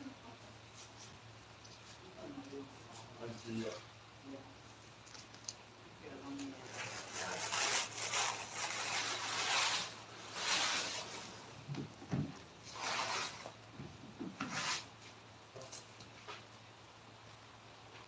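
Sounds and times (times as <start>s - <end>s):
hand rubbing wooden carving: 6.5s - 11.5s, 14.2s - 15.2s.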